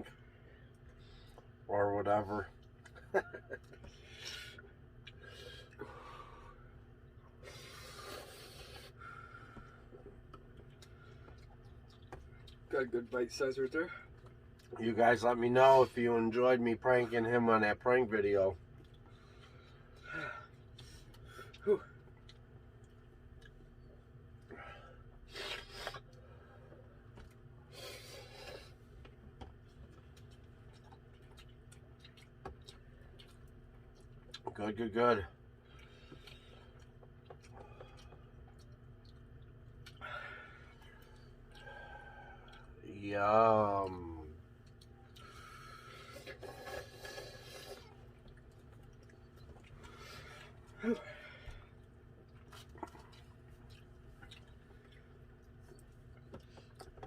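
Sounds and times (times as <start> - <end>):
breathy eating noises: 0.0 - 1.7, 2.3 - 57.0
person breathing hissing breaths: 7.4 - 9.9.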